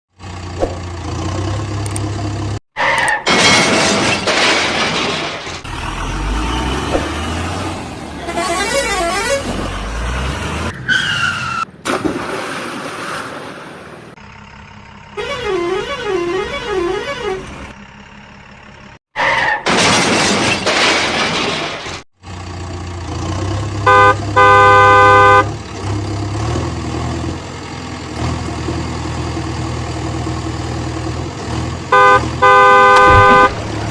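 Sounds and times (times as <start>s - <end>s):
truck horn honking: 8.2s - 9.9s, 15.2s - 17.8s, 23.8s - 25.6s, 31.9s - 33.9s.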